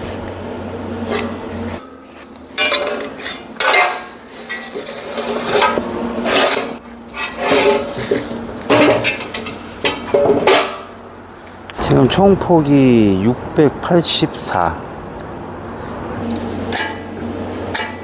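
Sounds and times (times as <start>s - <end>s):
metal clanks and knocks: 1.1s - 11.0s, 16.7s - 18.0s.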